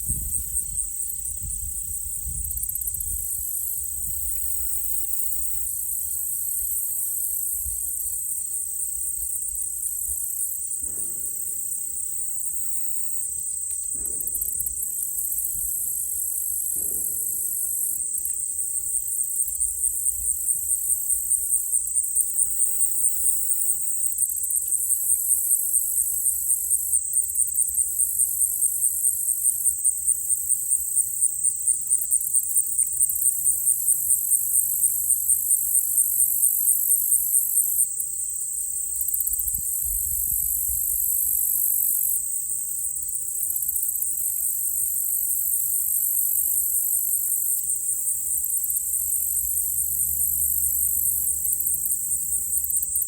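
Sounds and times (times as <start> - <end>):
insects trilling: 0.0 - 53.0
distant gunshots with echo: 10.8 - 12.9, 14.0 - 18.5.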